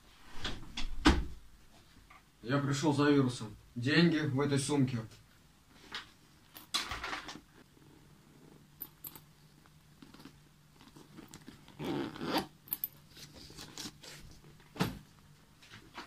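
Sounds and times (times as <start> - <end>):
rustling and scraping: 5.1 - 16.0
fabric bag unzipping: 10.0 - 14.2.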